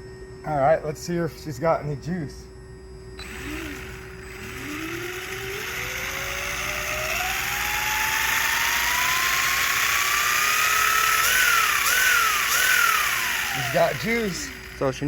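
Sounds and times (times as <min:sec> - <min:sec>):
gyro flywheel whine: 0:03.1 - 0:15.0
electric motor whining: 0:03.2 - 0:15.0.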